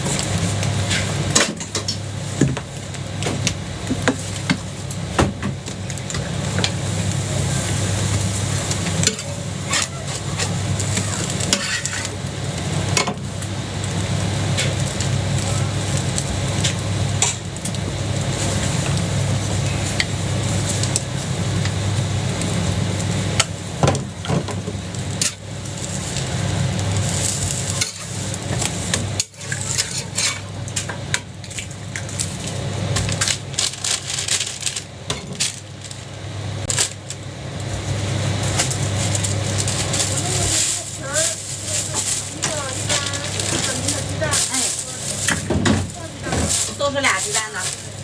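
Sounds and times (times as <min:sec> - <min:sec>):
pancake sizzling: 0:00.0 - 0:48.0
metal spatula scraping griddle: 0:09.0 - 0:12.2, 0:27.0 - 0:30.5.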